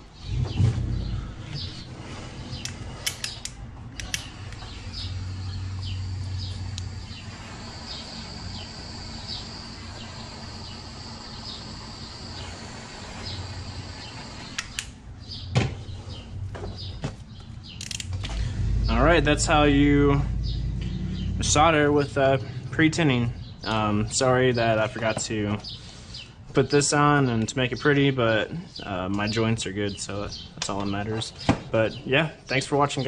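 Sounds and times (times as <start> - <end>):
bird chirping: 0.0 - 33.0
clicks from handling tools: 2.6 - 4.6.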